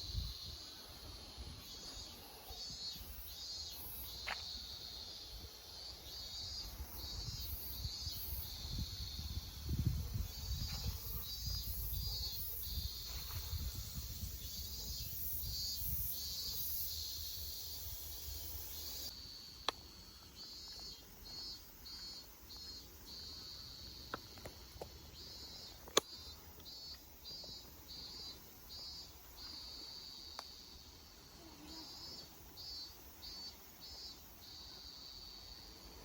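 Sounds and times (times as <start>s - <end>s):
insects buzzing: 0.0s - 36.0s
wind on microphone: 7.1s - 16.0s.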